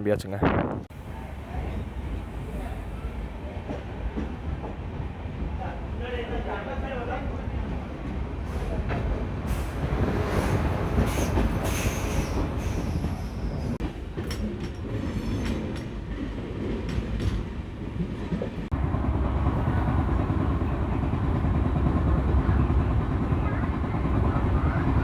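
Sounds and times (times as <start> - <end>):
train wheels rumbling on rails: 0.7 - 25.0
clacks over rail joints: 8.6 - 18.8.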